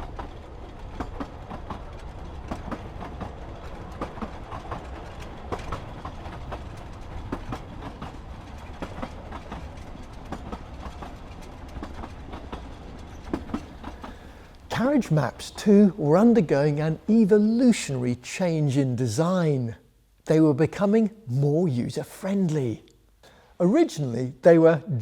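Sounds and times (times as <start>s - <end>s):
wheels clicking and knocking: 0.0s - 14.8s
train rumbling on rails: 0.0s - 19.2s.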